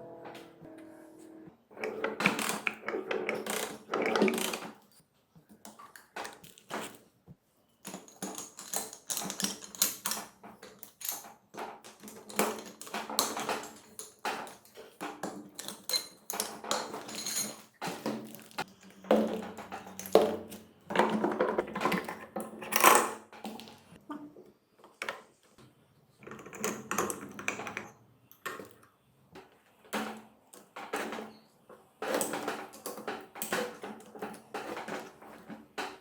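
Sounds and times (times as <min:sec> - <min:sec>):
tools and engine parts clanking: 0:07.8 - 0:23.2.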